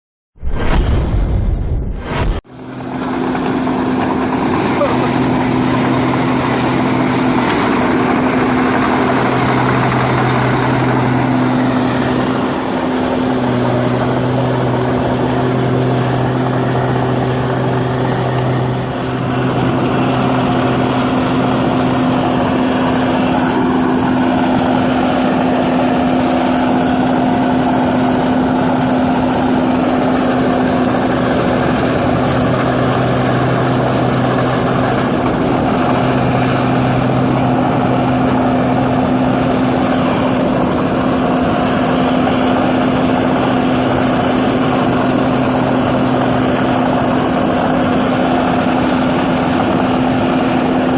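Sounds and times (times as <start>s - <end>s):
combine harvester droning: 2.0s - 50.9s.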